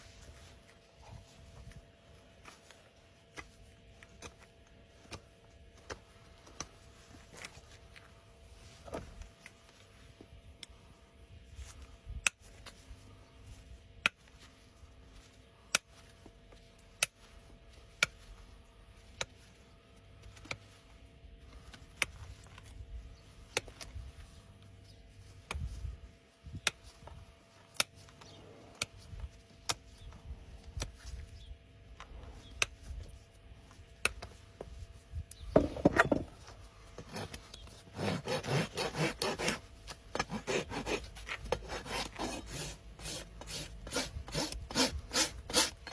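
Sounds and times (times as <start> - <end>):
rasp filing a hoof: 37.0 - 45.9.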